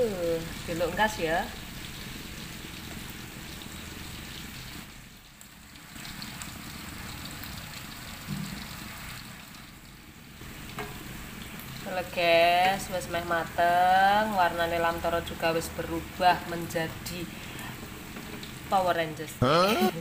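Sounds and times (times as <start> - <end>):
food sizzling in a frying pan: 0.0 - 20.0.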